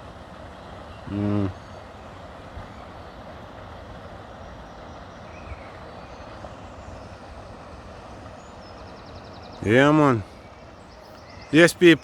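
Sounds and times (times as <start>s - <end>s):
road traffic rumble: 0.0s - 12.0s
faint bird chirps: 4.0s - 7.4s, 8.2s - 12.0s.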